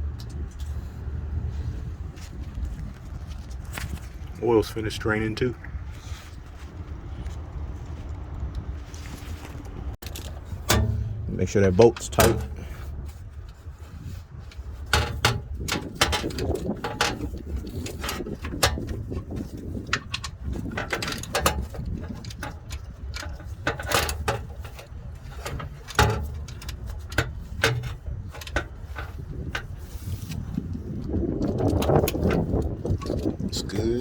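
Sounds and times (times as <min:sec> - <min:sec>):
metal tools clinking: 0:10.0 - 0:12.9, 0:14.5 - 0:30.0.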